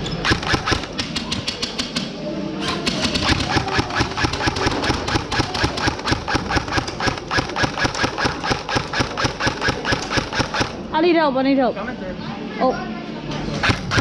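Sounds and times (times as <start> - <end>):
airsoft gun firing: 0.2 - 1.8, 2.8 - 10.9, 13.6 - 14.0.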